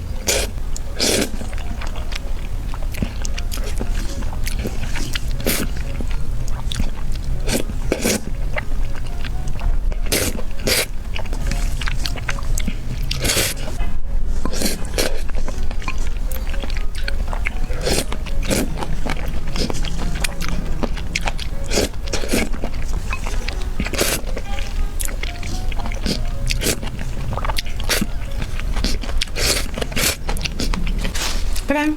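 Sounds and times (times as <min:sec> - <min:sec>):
crisp bites and chewing: 0:00.0 - 0:13.8, 0:14.4 - 0:31.7.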